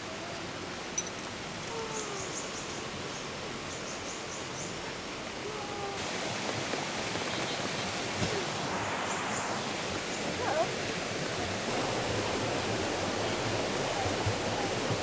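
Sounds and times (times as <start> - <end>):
rain and running water: 0.0 - 15.0.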